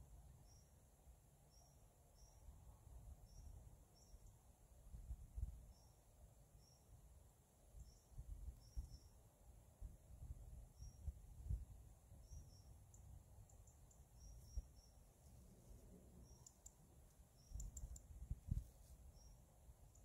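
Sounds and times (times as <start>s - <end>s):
small bird chirping: 0.4s - 0.8s, 1.5s - 2.6s, 3.2s - 4.5s, 5.4s - 6.0s, 6.6s - 6.9s, 7.7s - 9.2s, 10.7s - 11.2s, 12.1s - 20.0s.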